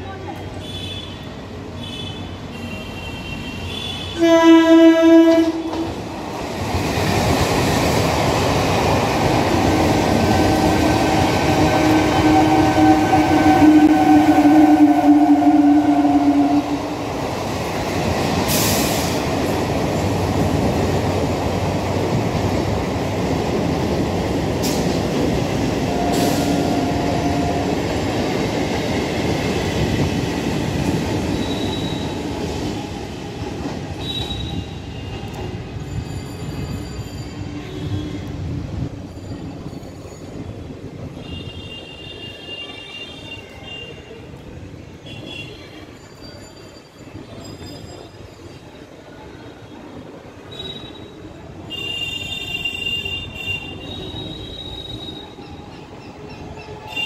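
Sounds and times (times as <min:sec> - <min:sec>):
train wheels rumbling on rail: 0:00.0 - 0:57.0
train whine: 0:03.7 - 0:42.1.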